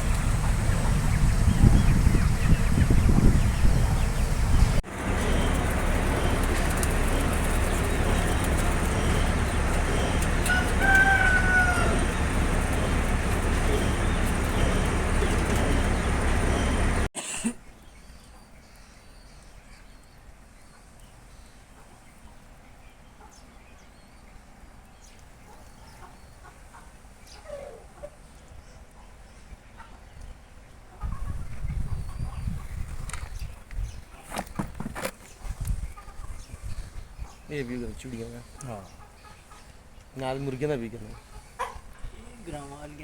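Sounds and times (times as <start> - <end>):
wind rumble on microphone: 0.0 - 17.1, 31.0 - 37.4
rooster crowing: 5.2 - 17.1.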